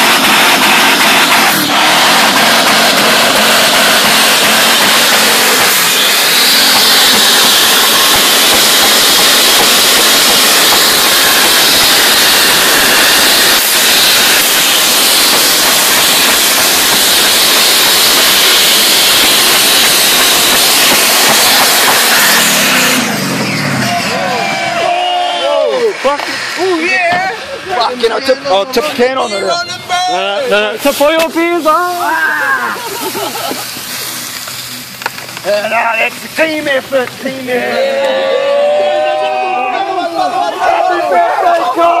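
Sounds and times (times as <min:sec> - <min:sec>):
engine at high revs: 0:00.0 - 0:24.8
spinning tyres hissing: 0:00.0 - 0:42.0.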